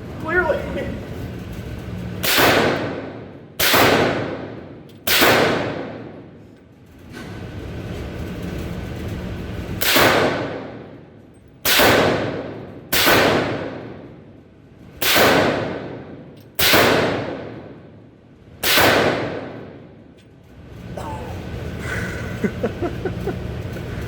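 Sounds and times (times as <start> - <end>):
suppressed rifle shots with echo: 2.2 - 6.3, 9.8 - 10.9, 11.6 - 14.1, 15.0 - 17.8, 18.6 - 19.8.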